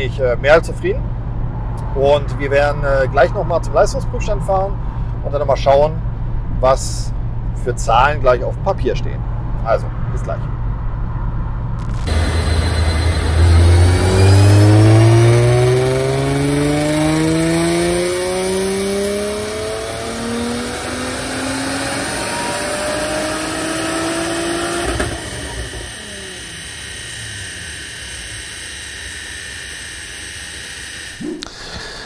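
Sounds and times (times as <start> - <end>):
high supercharger whine: 0.0 - 32.0
car engine revving at full throttle: 11.8 - 31.2
dyno rollers coasting down: 11.9 - 31.5.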